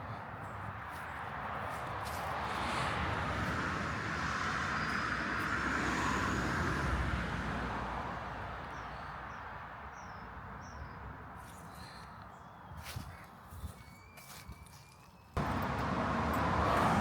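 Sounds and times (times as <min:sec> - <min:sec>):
vehicle passing: 0:00.9 - 0:08.7, 0:15.4 - 0:17.0
bird chirps: 0:11.6 - 0:15.4.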